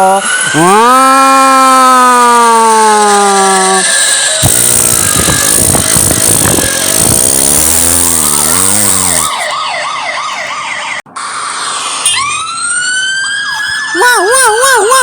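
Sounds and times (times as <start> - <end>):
loud noise: 0.0 - 9.6
police siren: 0.2 - 15.0.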